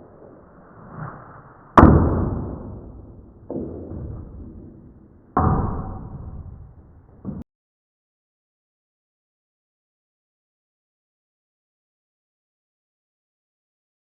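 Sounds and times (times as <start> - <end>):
knocks: 1.8 - 7.4.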